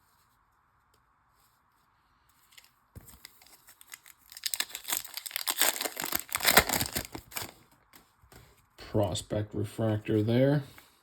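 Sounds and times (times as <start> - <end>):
wrapper tearing and crinkling: 2.5 - 7.6.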